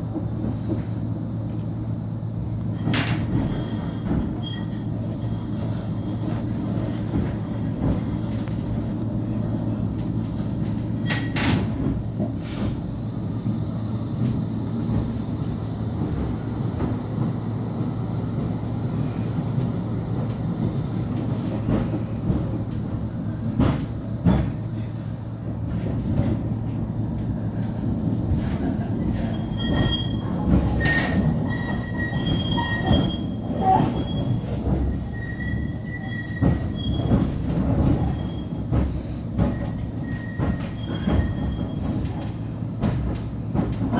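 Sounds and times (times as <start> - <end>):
tram rumbling on rails: 0.0 - 43.9
high-pitched wheel squeals: 29.3 - 37.2, 39.6 - 41.9.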